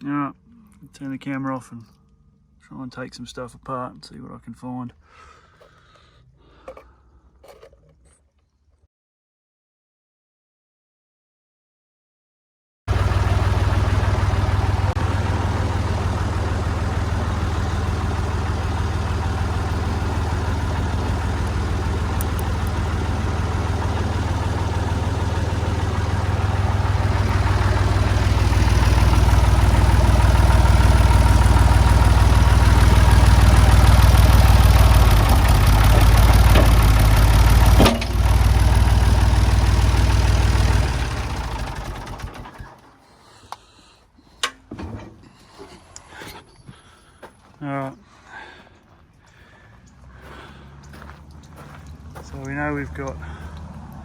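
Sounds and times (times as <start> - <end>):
backhoe loader engine running: 12.9 - 47.5, 48.4 - 54.0
clunk: 35.8 - 37.0, 37.6 - 38.3, 44.4 - 46.5.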